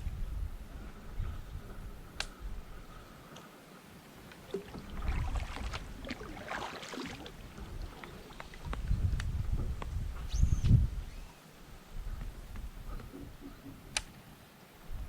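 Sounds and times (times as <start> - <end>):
water splashing around kayak: 3.2 - 10.1.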